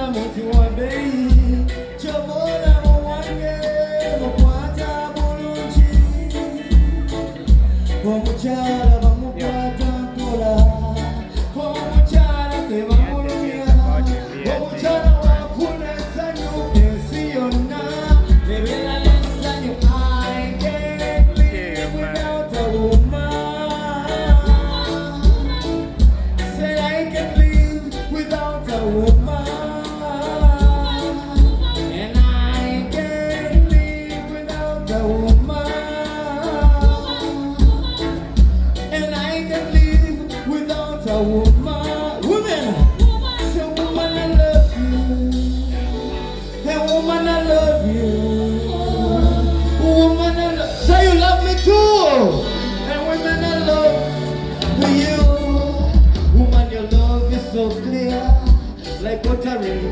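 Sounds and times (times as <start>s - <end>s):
live band music: 0.0s - 59.9s
person singing: 0.0s - 59.9s
bass drum thumps: 4.4s - 4.8s, 18.1s - 20.3s, 21.2s - 21.8s, 54.6s - 57.4s, 58.2s - 59.4s.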